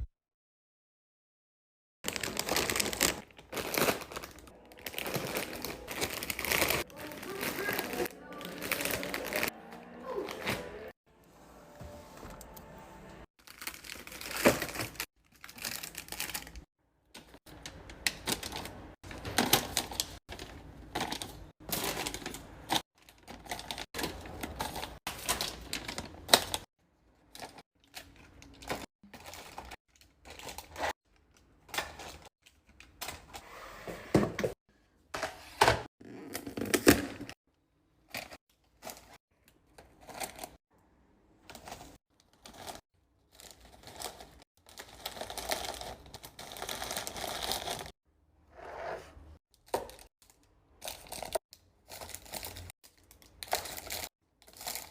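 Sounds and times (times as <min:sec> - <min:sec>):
packaging rustling: 0:02.1 - 0:09.5.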